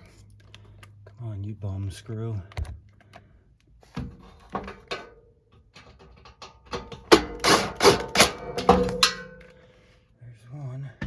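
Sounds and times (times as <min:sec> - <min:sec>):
screw driven into sheet metal: 0:06.8 - 0:09.2
metal scraping on metal: 0:06.8 - 0:09.4
loud rasping bursts: 0:07.3 - 0:08.4.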